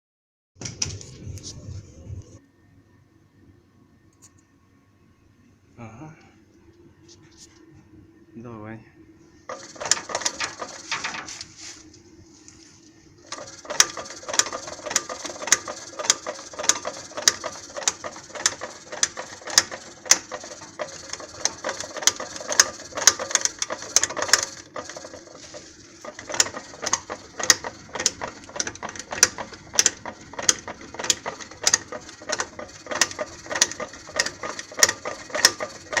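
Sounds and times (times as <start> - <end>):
steady hum: 0.6 - 36.0
metallic knocking in gearbox: 9.5 - 11.2, 13.3 - 36.0.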